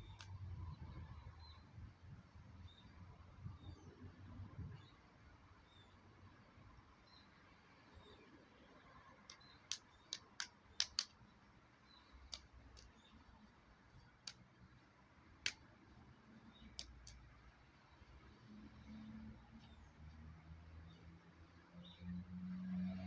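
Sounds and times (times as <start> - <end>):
short sharp clicks: 9.2 - 11.2.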